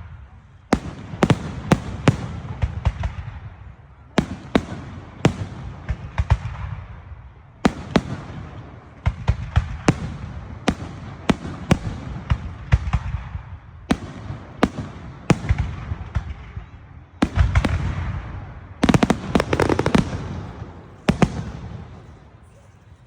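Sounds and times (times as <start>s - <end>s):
fireworks banging: 17.2s - 23.0s
fireworks crackling: 17.2s - 23.0s.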